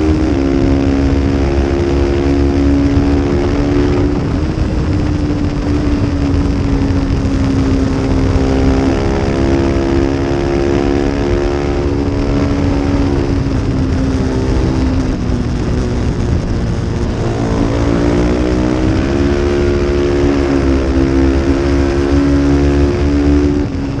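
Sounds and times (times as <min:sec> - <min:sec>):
race motorcycle engine running: 0:00.0 - 0:24.0.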